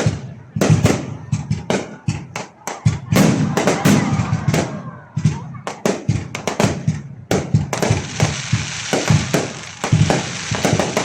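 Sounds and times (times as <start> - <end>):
fireworks banging: 0.0 - 11.0
fireworks crackling: 5.7 - 11.0.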